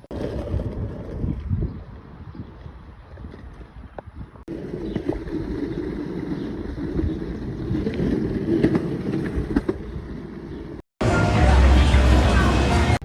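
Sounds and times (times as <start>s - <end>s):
skateboard wheels rolling on pavement: 0.0s - 13.0s
wind buffeting microphone: 0.1s - 5.8s.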